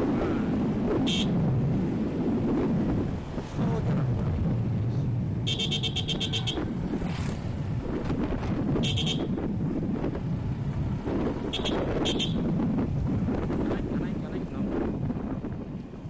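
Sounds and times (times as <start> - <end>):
wind noise on microphone: 0.0 - 16.0
motorcycle engine running: 5.4 - 13.0.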